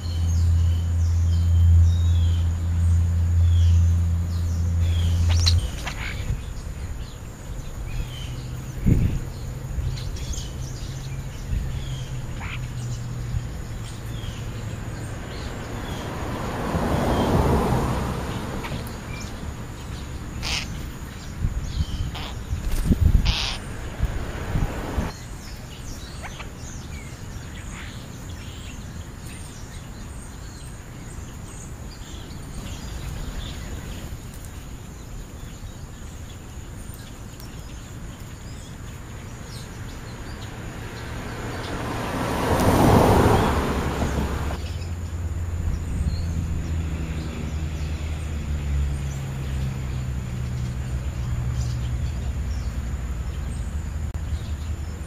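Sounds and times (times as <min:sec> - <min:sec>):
low engine hum: 0:00.0 - 0:25.8, 0:39.1 - 0:55.0
birds calling: 0:00.0 - 0:55.0
vehicle passing whoosh: 0:08.1 - 0:25.2, 0:39.5 - 0:55.0.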